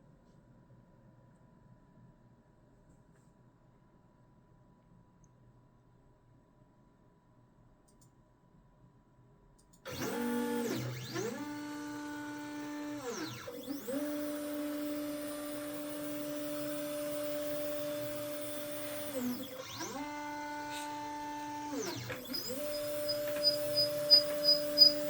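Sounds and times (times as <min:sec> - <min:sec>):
laser engraver head squealing: 0:12.8 - 0:25.0.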